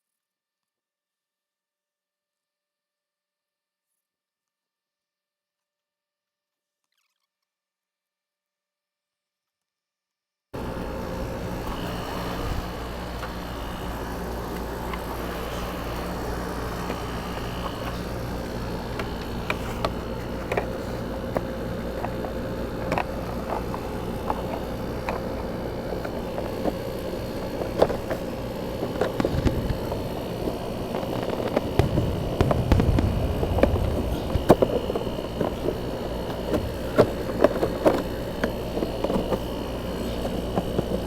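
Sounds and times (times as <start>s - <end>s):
motor humming: 10.6s - 41.0s.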